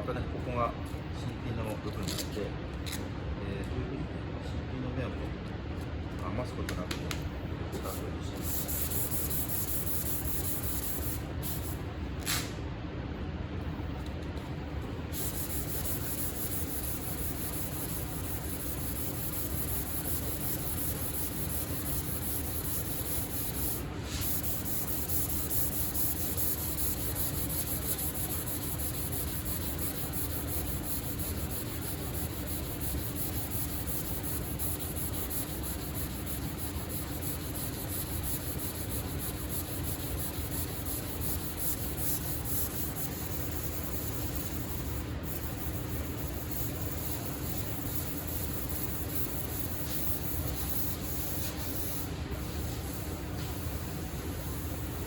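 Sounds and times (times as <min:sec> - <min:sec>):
sandpaper rubbing on car panel: 0:08.4 - 0:11.8, 0:15.1 - 0:53.1.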